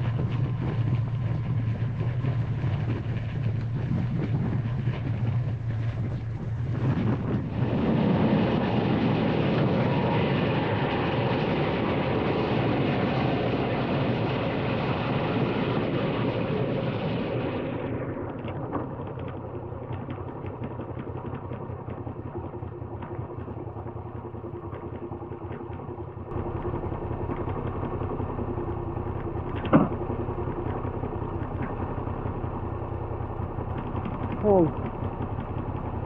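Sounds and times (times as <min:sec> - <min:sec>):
motorcycle engine running: 0:00.0 - 0:08.1, 0:18.1 - 0:36.0
wind rush: 0:00.0 - 0:19.5.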